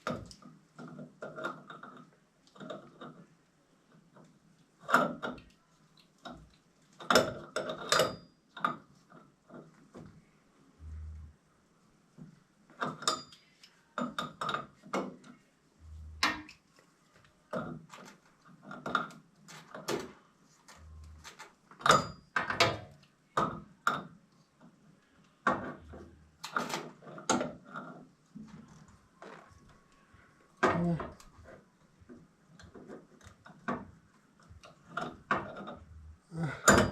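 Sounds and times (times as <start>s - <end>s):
tools and metal parts clanking: 7.0s - 8.9s, 34.7s - 36.9s.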